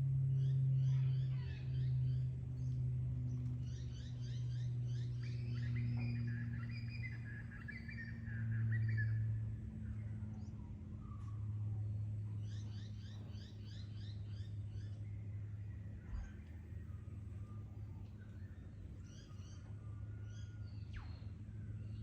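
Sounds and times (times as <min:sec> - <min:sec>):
steady low hum: 0:00.0 - 0:22.0
bird warbling song: 0:00.3 - 0:22.0
birds chirping: 0:00.3 - 0:22.0.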